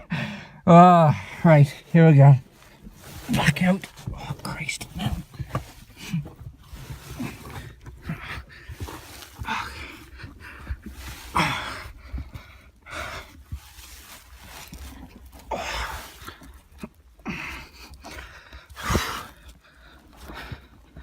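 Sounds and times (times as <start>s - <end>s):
man breathing hard and gasping: 0.0s - 1.4s, 7.2s - 13.6s, 17.2s - 21.0s.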